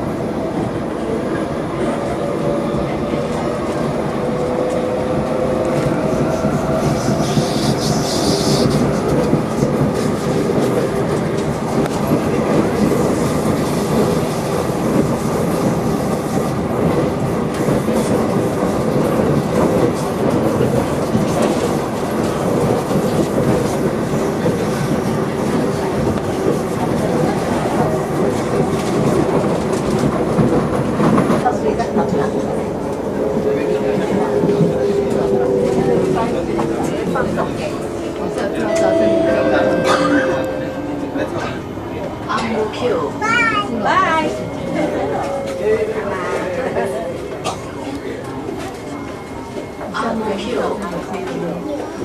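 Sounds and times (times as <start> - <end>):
train wheels rumbling on rails: 0.0 - 52.0
brief high-pitched noise: 38.7 - 41.4.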